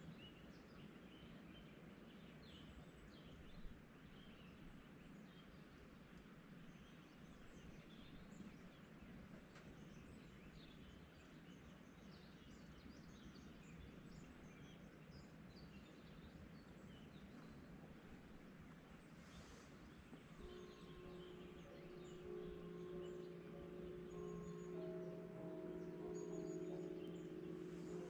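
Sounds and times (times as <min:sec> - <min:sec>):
songbirds chirping: 0:00.0 - 0:28.0
low background hum: 0:12.5 - 0:28.0.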